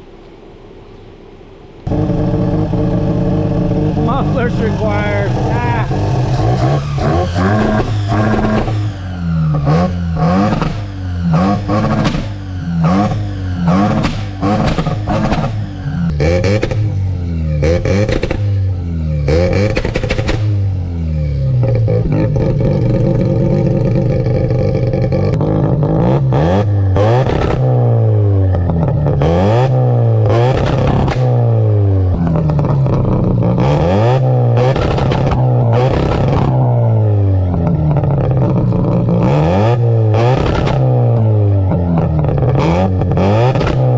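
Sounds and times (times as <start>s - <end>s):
exhaust cracks: 1.8s - 43.9s
rotary engine revving: 1.8s - 43.9s.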